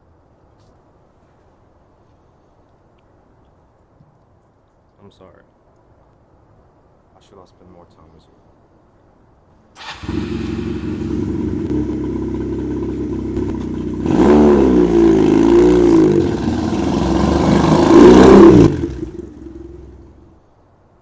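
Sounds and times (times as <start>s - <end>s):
motorcycle engine revving: 9.8s - 20.3s.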